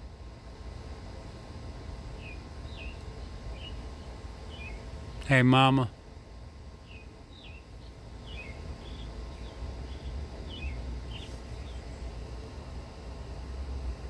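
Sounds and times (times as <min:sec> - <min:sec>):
bird chirping: 0:02.2 - 0:03.8, 0:04.5 - 0:04.8, 0:06.8 - 0:12.2.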